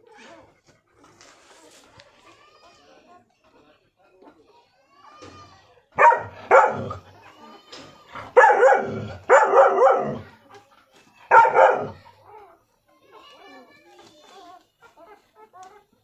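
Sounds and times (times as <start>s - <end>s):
dog barking loudly: 6.0s - 7.0s, 8.3s - 10.2s, 11.3s - 12.0s.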